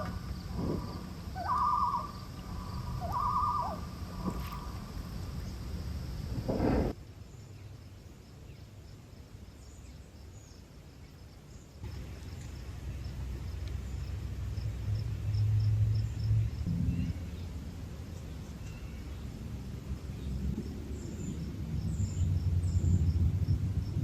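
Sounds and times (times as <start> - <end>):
faint high chirping: 0.0 - 6.0
low rumble: 13.0 - 18.3.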